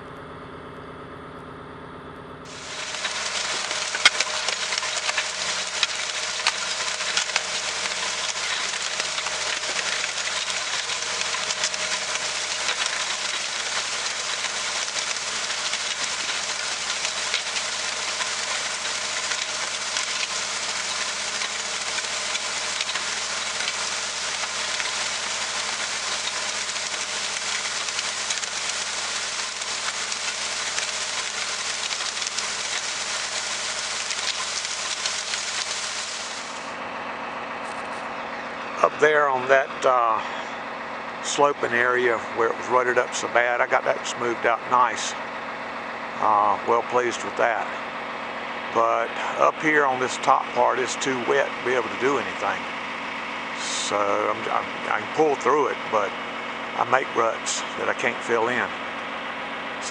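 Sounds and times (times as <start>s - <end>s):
loud hiss with crackles: 2.5s - 36.8s
engine idling: 2.5s - 42.2s.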